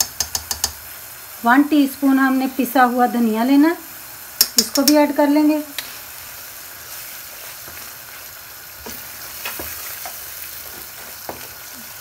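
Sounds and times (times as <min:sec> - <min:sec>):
masala sizzling in a pan: 0:00.0 - 0:12.0.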